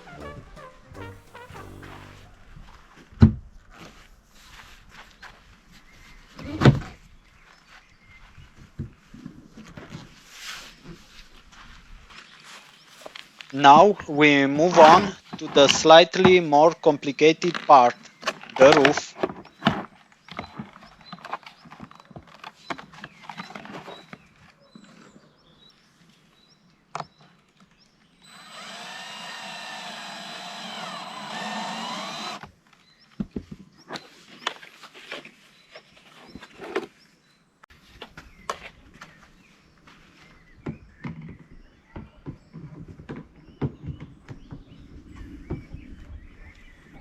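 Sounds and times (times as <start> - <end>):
electric screwdriver running: 28.2 - 32.5.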